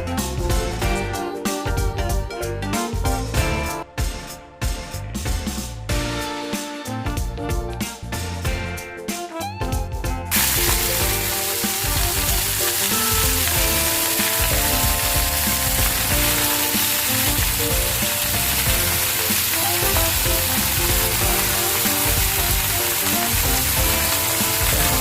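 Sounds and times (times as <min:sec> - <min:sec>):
music playing: 0:00.0 - 0:25.0
food sizzling in a pan: 0:10.3 - 0:25.0.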